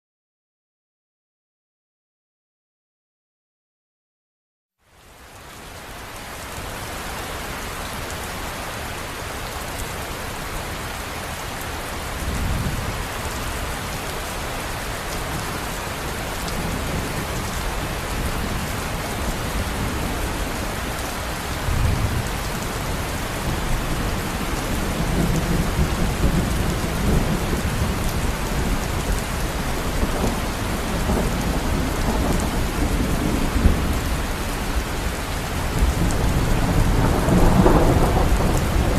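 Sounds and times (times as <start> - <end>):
heavy rain: 4.8 - 38.9
rolls of thunder: 35.8 - 38.9.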